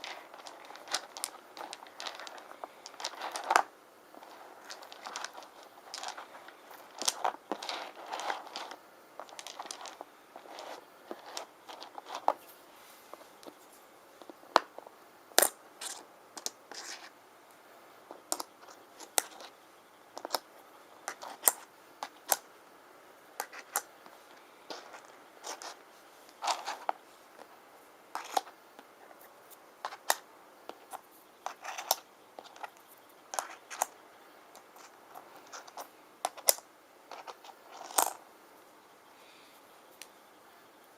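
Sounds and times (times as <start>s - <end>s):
stone tiles clicking together: 0.0s - 10.6s, 21.1s - 21.6s, 31.5s - 38.2s
scratching and rustling: 0.0s - 17.2s, 18.0s - 22.5s, 23.4s - 38.2s.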